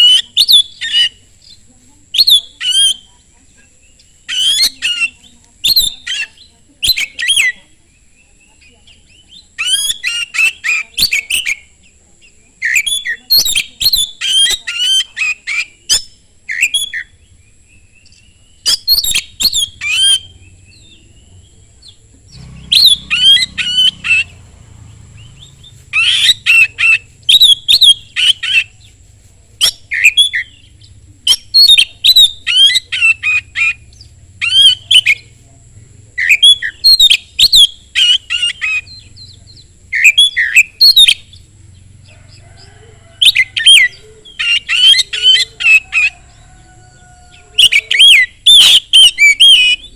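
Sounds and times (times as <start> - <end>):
bird singing chirps and whistles: 0.0 - 3.1, 9.1 - 11.7, 12.6 - 21.0, 21.8 - 24.4, 25.2 - 28.8, 29.6 - 35.2, 36.2 - 41.4, 43.2 - 46.2, 47.6 - 49.9.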